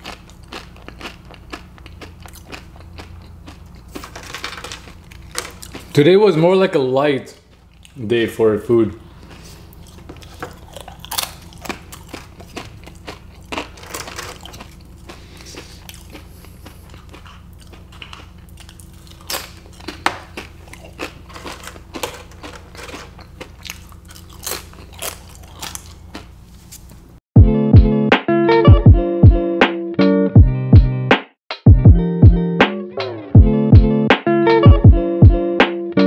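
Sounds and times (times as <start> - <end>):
person chewing crunchy food: 0.0 - 6.0, 7.5 - 8.0, 9.0 - 27.0.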